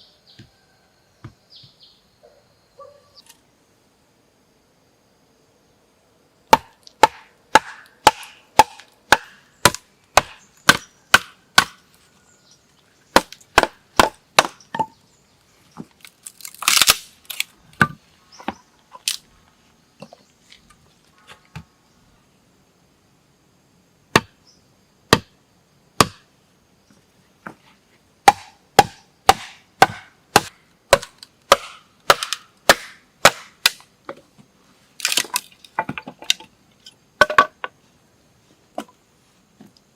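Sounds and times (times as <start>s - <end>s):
blade chopping wood: 6.5s - 11.8s, 13.1s - 14.9s, 24.2s - 24.4s, 25.1s - 25.3s, 26.0s - 26.2s, 28.3s - 33.9s.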